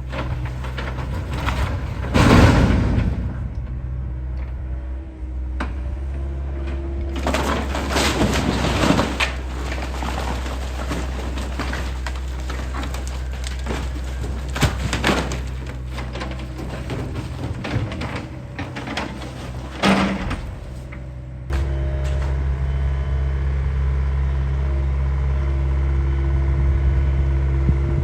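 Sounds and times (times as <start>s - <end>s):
wood and debris breaking: 0.0s - 4.6s, 5.6s - 22.2s
excavator diesel engine running: 0.0s - 28.0s.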